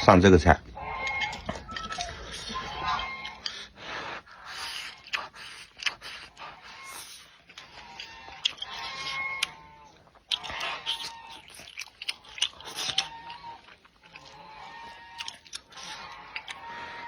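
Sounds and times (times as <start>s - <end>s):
person chewing food: 0.6s - 17.0s
wet mouth clicks: 1.0s - 16.8s.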